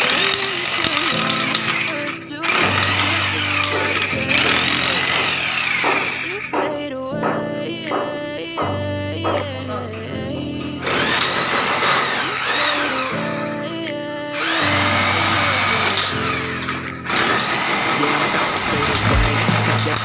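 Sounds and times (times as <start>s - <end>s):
background music: 0.0s - 20.0s
hammer drill chiselling masonry: 2.5s - 8.7s, 10.8s - 13.1s, 14.4s - 20.0s.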